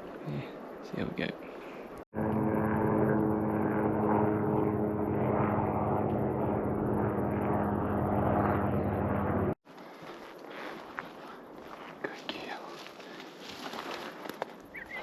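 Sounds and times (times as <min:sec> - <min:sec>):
constant hum: 0:01.9 - 0:15.0
engine droning: 0:02.2 - 0:09.6
noisy rush: 0:02.2 - 0:09.6.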